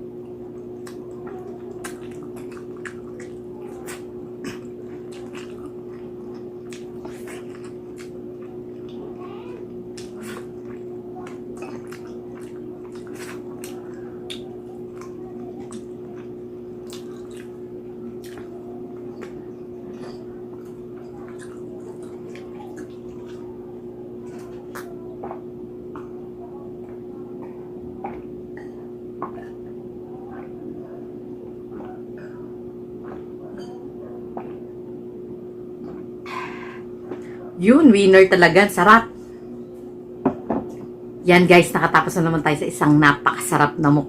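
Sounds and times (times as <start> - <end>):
steady low hum: 0.0 - 44.0
wet chewing and lip smacking: 0.4 - 23.5, 24.2 - 26.1.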